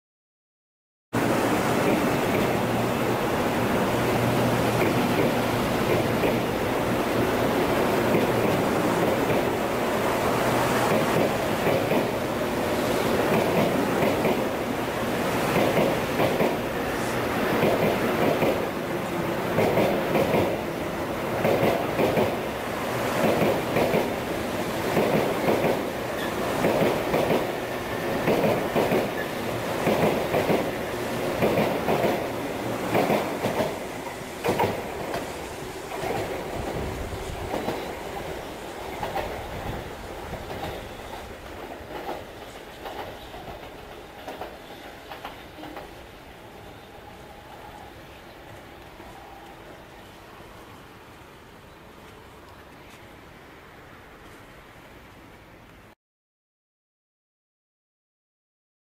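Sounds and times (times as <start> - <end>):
train wheels rhythmic clatter: 4.0 - 50.2.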